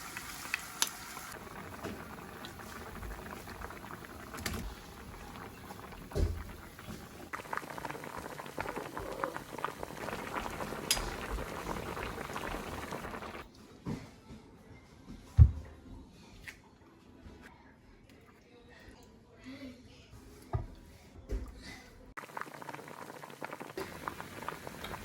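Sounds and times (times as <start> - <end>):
stew boiling with bubbling and popping: 0.0 - 13.5, 22.2 - 25.0.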